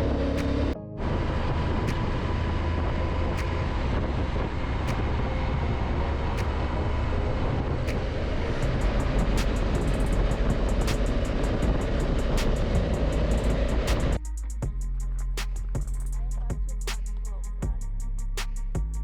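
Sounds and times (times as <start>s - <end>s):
motorcycle engine drone: 0.0s - 14.2s
wind noise: 0.0s - 14.2s.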